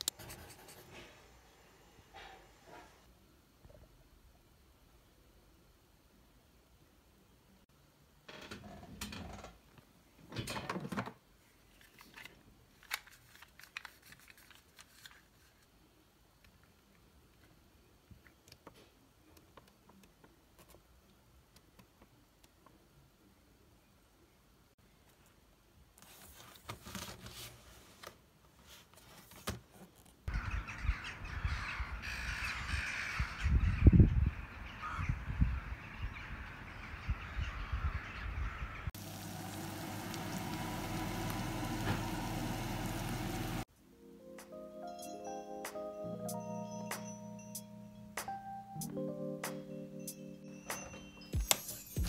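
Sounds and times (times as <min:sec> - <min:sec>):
harsh bird calls: 0:30.3 - 0:38.9.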